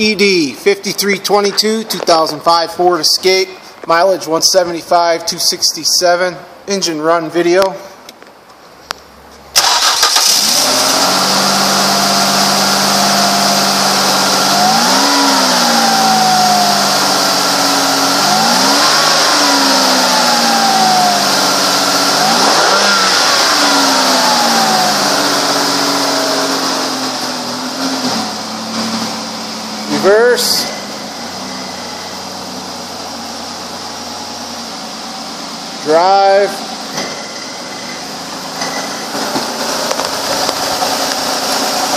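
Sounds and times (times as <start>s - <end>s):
car engine starting and idling: 9.0s - 41.9s
car engine revving: 9.6s - 41.9s.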